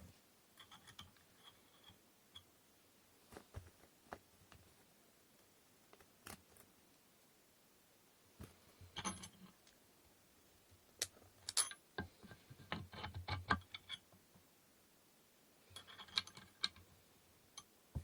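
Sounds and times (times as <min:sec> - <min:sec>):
wooden parts clicking and knocking: 0:11.0 - 0:14.0, 0:15.8 - 0:16.8.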